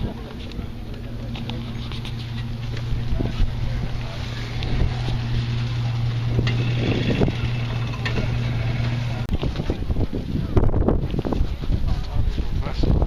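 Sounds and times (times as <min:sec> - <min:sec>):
engine humming: 0:00.0 - 0:11.8.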